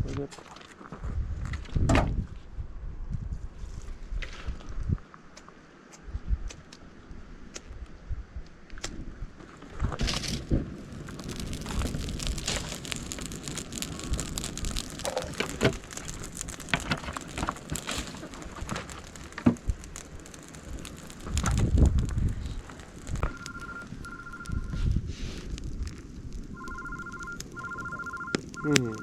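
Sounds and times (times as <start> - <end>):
wood fire crackling: 8.6 - 29.0
low rumble: 9.8 - 29.0
mobile phone ringtone beeping: 23.3 - 24.7, 26.6 - 29.0.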